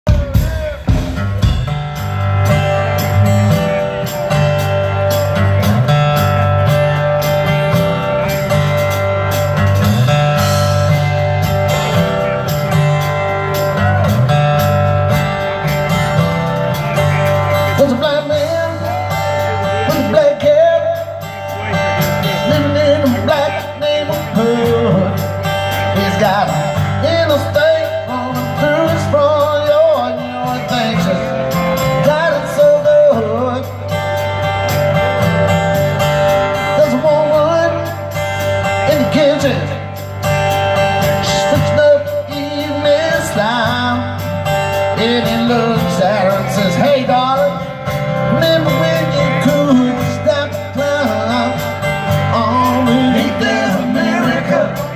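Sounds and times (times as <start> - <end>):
rock band playing: 0.0 - 54.9
person singing: 0.1 - 1.8, 15.1 - 34.0, 41.0 - 54.9.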